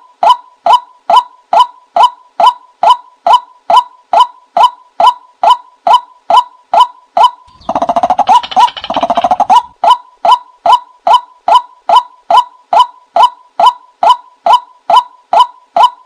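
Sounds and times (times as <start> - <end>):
fast rattling bird call: 7.5 - 9.8.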